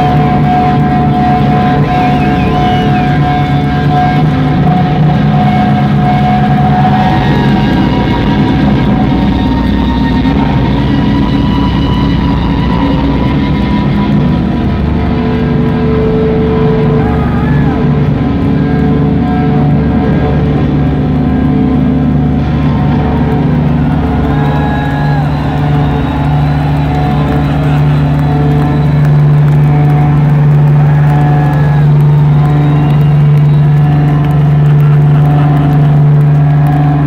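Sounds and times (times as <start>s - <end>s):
distorted electric guitars: 0.0s - 37.0s
guitar feedback tones: 0.0s - 37.0s.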